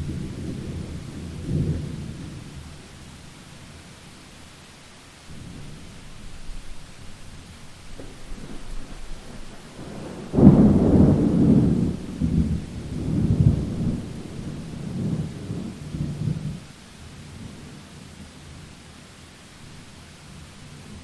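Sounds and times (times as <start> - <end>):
steady rain: 0.0 - 21.0
thunder rolling: 7.9 - 16.6.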